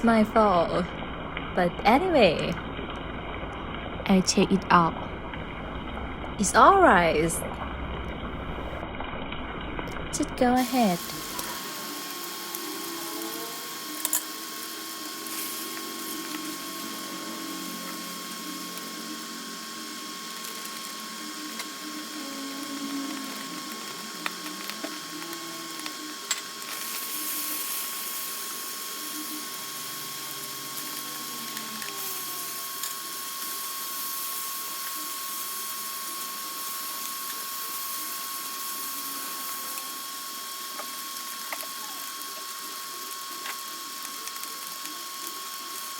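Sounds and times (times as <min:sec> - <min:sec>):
thin steady hum: 0:00.0 - 0:08.9, 0:09.5 - 0:45.9
food sizzling in a pan: 0:10.1 - 0:45.9.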